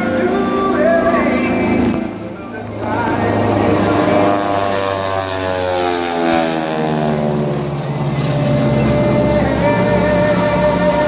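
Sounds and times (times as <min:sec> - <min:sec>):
propeller airplane flying past: 0:00.0 - 0:11.0.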